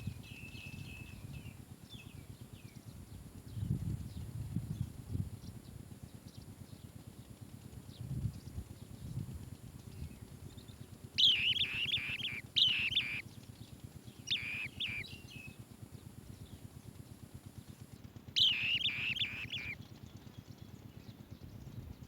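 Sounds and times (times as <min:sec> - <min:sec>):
low fast pulsing rattle: 0:00.0 - 0:22.0
bird trilled chirps: 0:11.2 - 0:13.2, 0:14.1 - 0:15.6, 0:18.4 - 0:19.8.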